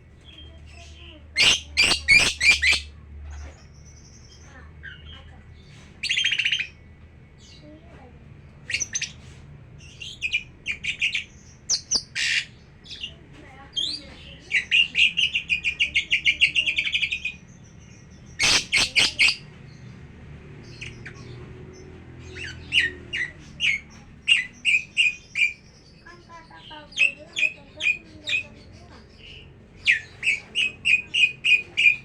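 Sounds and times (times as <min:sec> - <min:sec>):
lovebird chirping: 0:00.3 - 0:05.0, 0:13.9 - 0:19.4.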